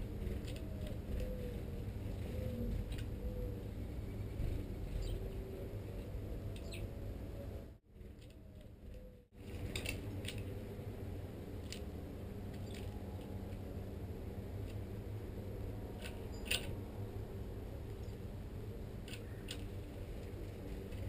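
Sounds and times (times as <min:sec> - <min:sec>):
steady low rumble: 0:00.0 - 0:21.0
songbirds high chirps: 0:02.2 - 0:05.4, 0:06.6 - 0:07.6.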